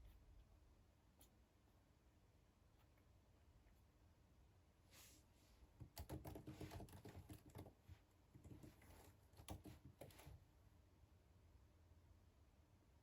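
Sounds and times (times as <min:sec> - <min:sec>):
typing on computer keyboard: 0:05.8 - 0:07.8, 0:08.4 - 0:10.3.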